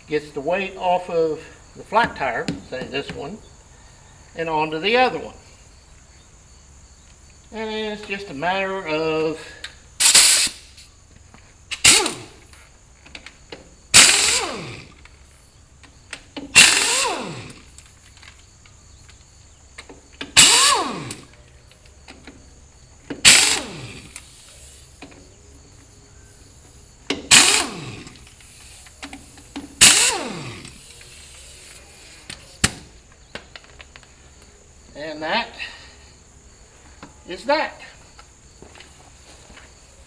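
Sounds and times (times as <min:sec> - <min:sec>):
impact wrench bursts: 0:09.9 - 0:10.9, 0:11.7 - 0:13.2, 0:13.9 - 0:15.3, 0:16.1 - 0:18.0, 0:19.8 - 0:21.4, 0:23.0 - 0:25.2, 0:27.1 - 0:33.0.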